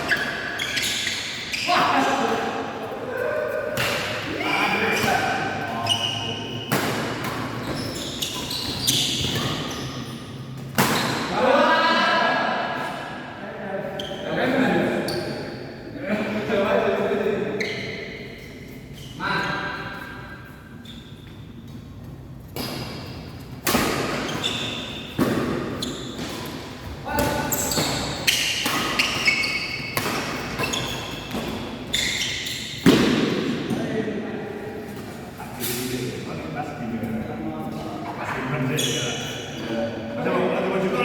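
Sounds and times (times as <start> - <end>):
shoes squeaking on court floor: 0.0 - 2.4, 3.7 - 11.3, 14.0 - 14.3, 17.6 - 33.3, 37.6 - 39.8
racket hitting shuttlecock: 25.0 - 31.8.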